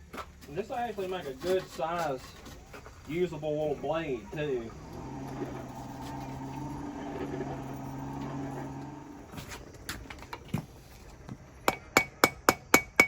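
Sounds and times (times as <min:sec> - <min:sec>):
steady low hum: 0:02.7 - 0:13.0.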